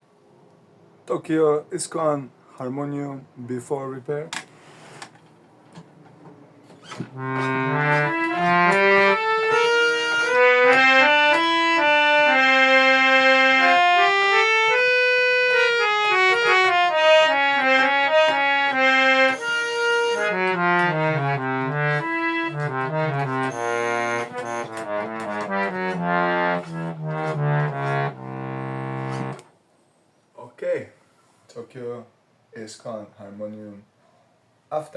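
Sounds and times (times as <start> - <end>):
harmonium melody: 7.0 - 29.5.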